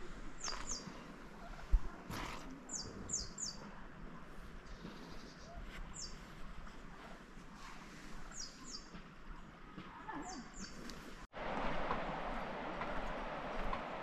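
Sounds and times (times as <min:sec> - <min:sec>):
bird chirping: 0:02.7 - 0:03.7, 0:04.7 - 0:06.3, 0:08.3 - 0:09.0
faint outdoor air hiss: 0:10.9 - 0:14.0.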